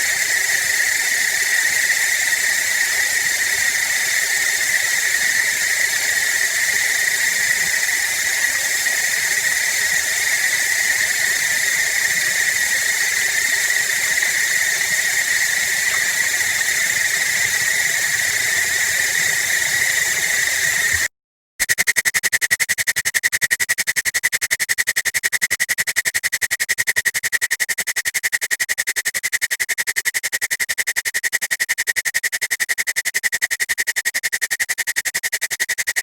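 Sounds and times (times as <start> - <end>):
running water hiss with voice changer: 0.0 - 21.1.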